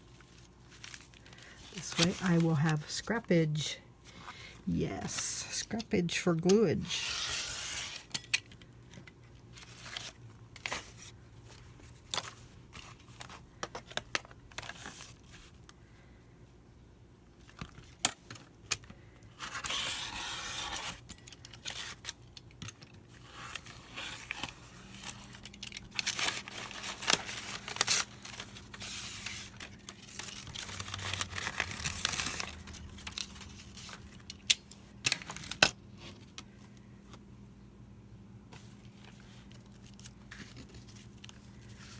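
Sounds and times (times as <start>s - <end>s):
paper rustling and tearing: 0.1s - 3.1s, 6.9s - 8.1s, 19.4s - 21.0s, 23.1s - 34.2s.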